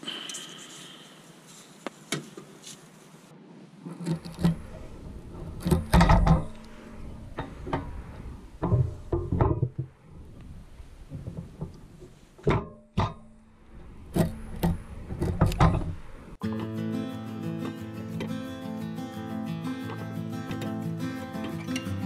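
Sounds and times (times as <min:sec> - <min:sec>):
knocks and thumps: 0:05.3 - 0:06.6, 0:08.6 - 0:10.0.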